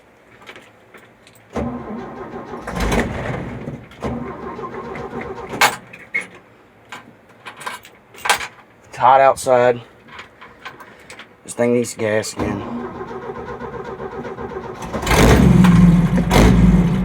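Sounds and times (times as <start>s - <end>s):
engine cranking by starter: 1.6s - 6.0s, 12.4s - 17.0s.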